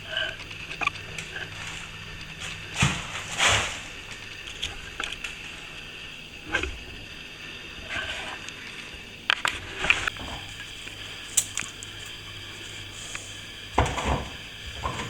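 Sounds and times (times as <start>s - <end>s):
trowel blade clicks: 10.9s - 12.2s.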